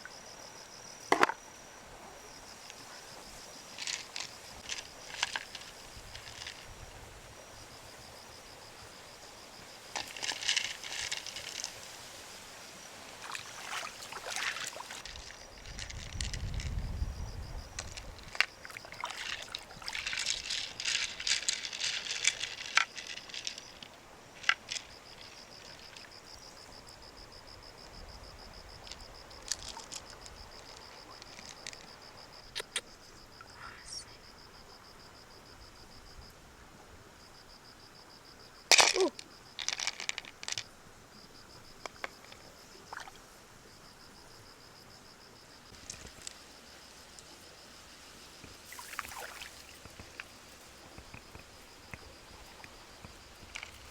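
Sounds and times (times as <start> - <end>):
insect trilling: 29.1 - 34.4, 38.8 - 39.3, 48.6 - 53.9
sharp clicks: 32.5 - 32.9.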